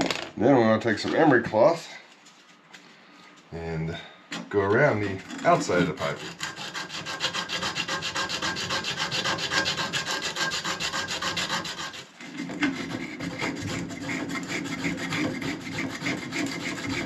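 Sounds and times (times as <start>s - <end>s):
emery cloth rubbing copper pipe: 5.0s - 17.0s.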